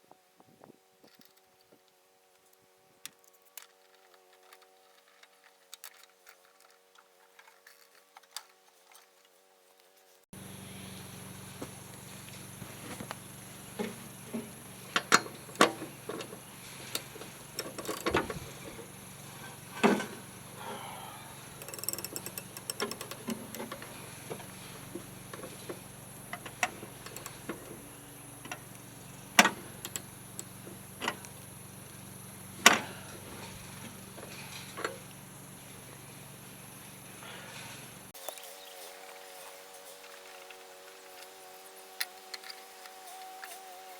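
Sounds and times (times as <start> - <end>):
ratchet clicking: 13.1 - 20.4, 21.3 - 32.8, 38.3 - 43.9
metal clanks and clicks: 13.8 - 20.2, 21.6 - 31.3.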